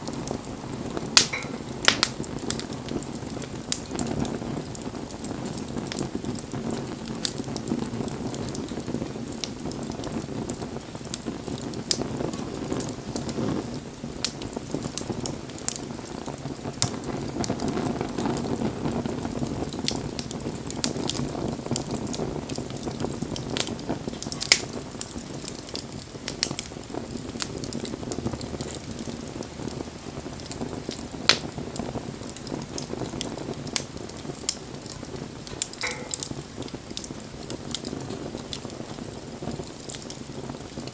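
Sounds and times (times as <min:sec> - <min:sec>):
bonfire flames rushing: 0:00.0 - 0:40.9
burning wood crackling and popping: 0:00.0 - 0:40.9.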